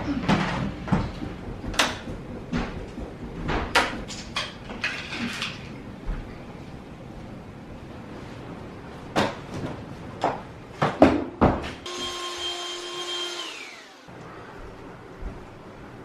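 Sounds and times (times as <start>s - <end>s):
kitchen utensils clattering: 3.7s - 5.8s.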